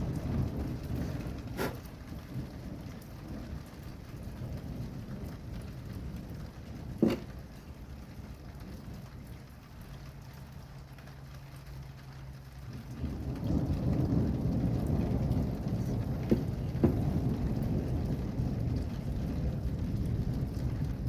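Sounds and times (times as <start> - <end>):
steady rain: 0.0 - 21.0
thunder rumbling: 0.0 - 21.0.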